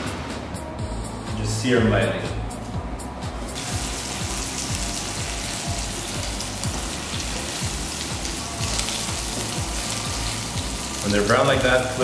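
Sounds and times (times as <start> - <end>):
background music with low beat: 0.0 - 12.0
food sizzling in hot oil: 3.6 - 12.0.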